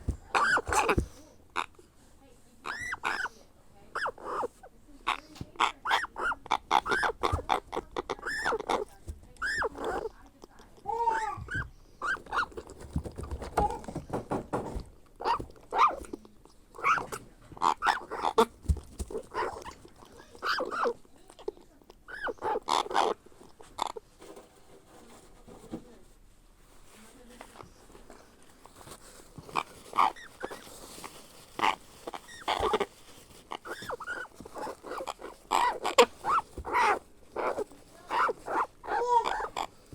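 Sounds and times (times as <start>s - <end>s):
parrot chick squawking: 0.2s - 1.7s, 2.6s - 4.5s, 5.1s - 10.1s, 10.9s - 13.8s, 15.2s - 16.0s, 16.8s - 21.0s, 22.1s - 23.2s, 29.6s - 39.8s.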